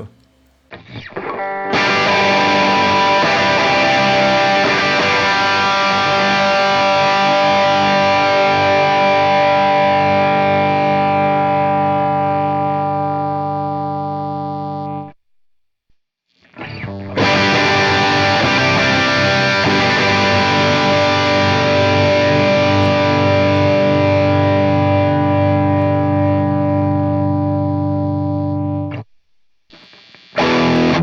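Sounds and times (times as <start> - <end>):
distorted electric guitar chord: 1.7 - 15.0, 17.1 - 28.9, 30.4 - 31.0.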